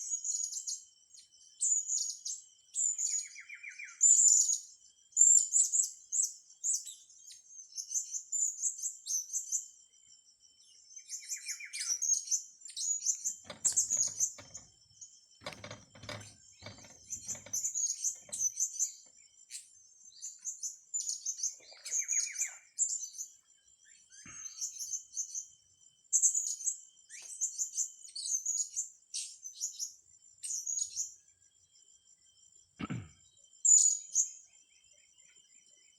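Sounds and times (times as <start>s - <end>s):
knock: 13.4s - 14.7s, 15.4s - 18.4s.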